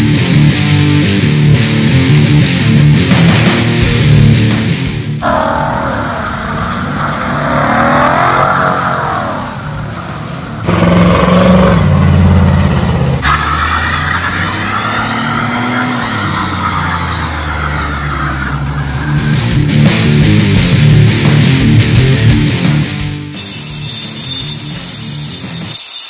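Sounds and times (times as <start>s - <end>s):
car engines revving hard: 3.1s - 22.8s.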